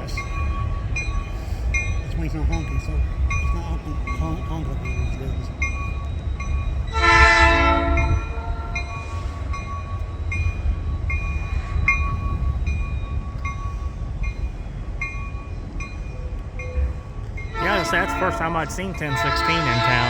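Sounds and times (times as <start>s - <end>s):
railroad crossing bell dinging: 0.0s - 20.0s
train rumbling past: 0.0s - 20.0s
locomotive horn blast: 6.9s - 9.3s, 17.5s - 20.0s.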